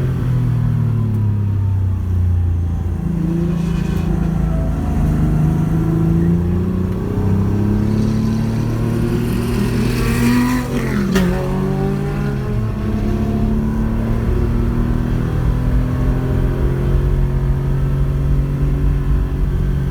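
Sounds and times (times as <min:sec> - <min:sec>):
rally car engine revving: 0:00.0 - 0:19.9.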